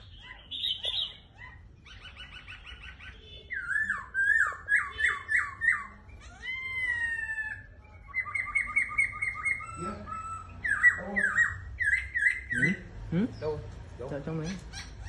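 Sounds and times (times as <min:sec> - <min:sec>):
bird whistling: 0:00.0 - 0:12.8
bird chattering notes: 0:00.0 - 0:15.0.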